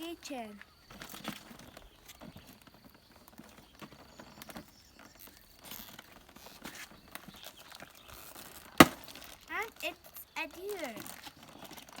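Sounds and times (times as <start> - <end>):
short knocks: 8.8 - 9.1.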